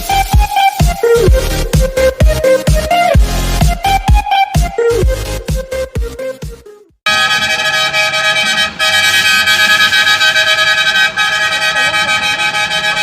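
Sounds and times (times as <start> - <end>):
electronic dance music: 0.0 - 7.3
truck air horn chord: 7.1 - 13.0.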